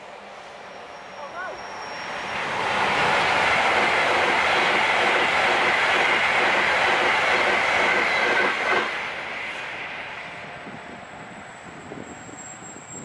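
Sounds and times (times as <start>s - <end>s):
passenger train passing: 0.0s - 13.0s.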